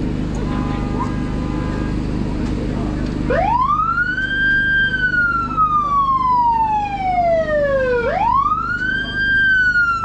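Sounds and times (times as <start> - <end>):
emergency vehicle siren wailing: 3.2 - 10.0.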